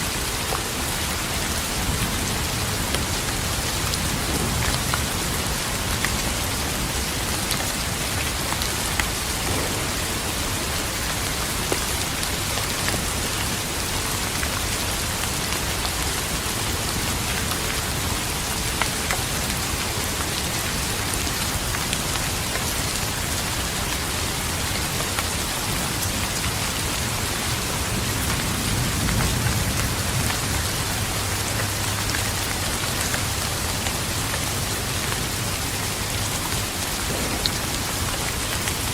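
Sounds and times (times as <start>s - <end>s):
steady rain falling: 0.0s - 38.9s
distant thunder rumble: 9.4s - 13.0s, 37.0s - 38.9s.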